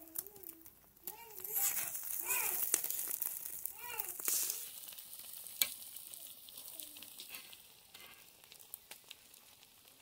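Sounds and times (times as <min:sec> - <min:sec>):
omelette sizzling in a pan: 0:00.0 - 0:10.0
metal spatula clinking and scraping: 0:07.2 - 0:08.2.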